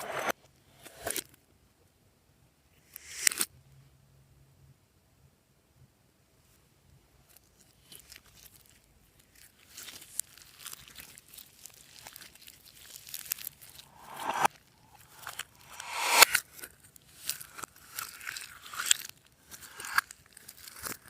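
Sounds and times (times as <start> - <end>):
slime crackling and tearing: 7.9 - 13.6.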